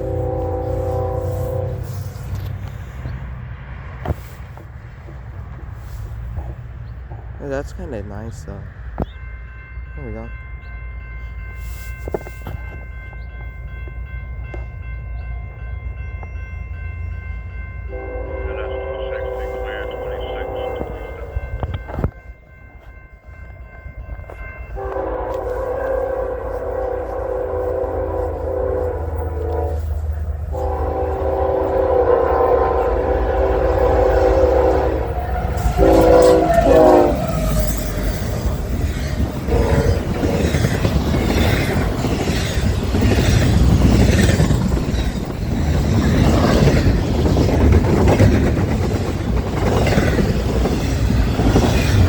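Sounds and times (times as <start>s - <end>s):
locomotive air horn blasts: 0.0s - 2.3s, 17.9s - 21.4s, 24.8s - 37.6s, 39.5s - 40.7s
train wheels rumbling on rail: 0.0s - 10.4s, 11.0s - 52.0s
train cars clanking: 0.0s - 52.0s.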